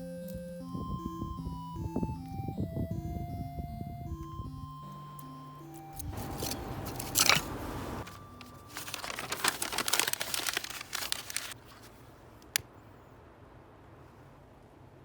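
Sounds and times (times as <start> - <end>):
crinkling handling noise: 4.2 - 12.6.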